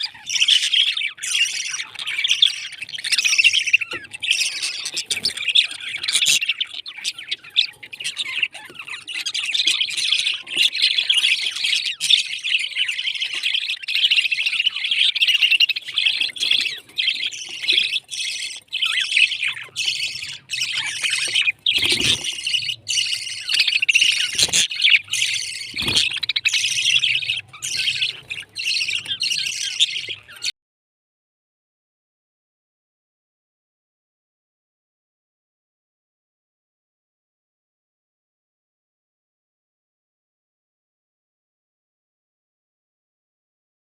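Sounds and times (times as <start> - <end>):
parrots chirping and squawking: 0.0 - 30.5.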